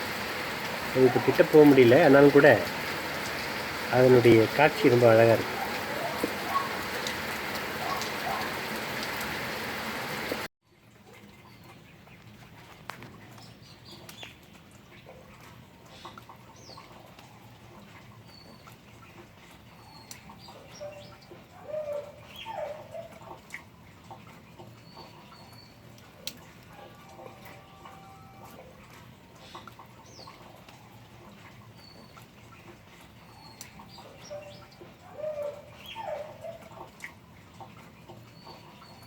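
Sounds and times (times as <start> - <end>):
steady rain: 0.0 - 10.5, 16.4 - 39.0
bird chirps and calls: 19.8 - 23.2, 33.2 - 36.8.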